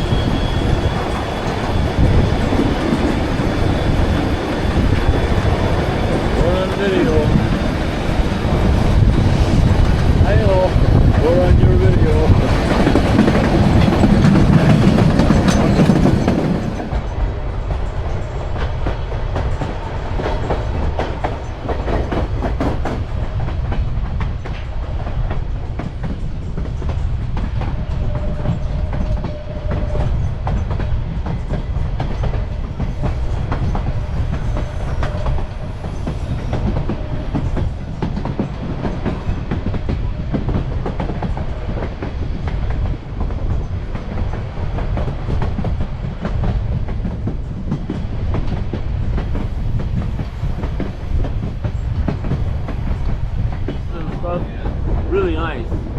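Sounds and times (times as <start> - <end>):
rushing noise: 0.0 - 18.6
train low rumble: 0.0 - 55.9
wheels clicking over rail joints: 12.3 - 17.0.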